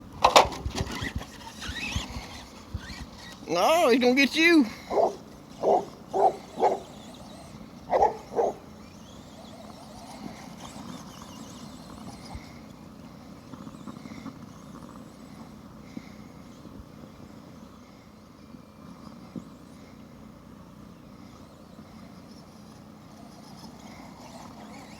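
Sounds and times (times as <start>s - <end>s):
toy truck motor running: 0.0s - 24.9s
dog barking: 4.9s - 6.9s, 7.9s - 8.6s.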